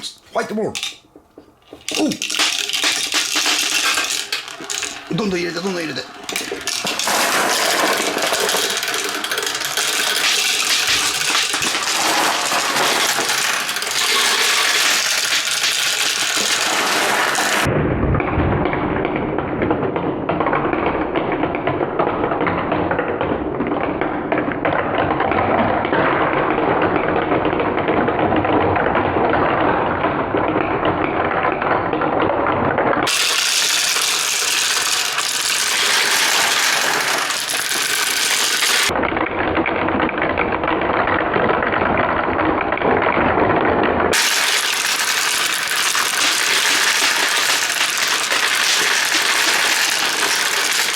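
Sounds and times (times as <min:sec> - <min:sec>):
plastic balls rattling down marble run: 0:00.0 - 0:17.7, 0:33.0 - 0:39.0, 0:39.8 - 0:50.9.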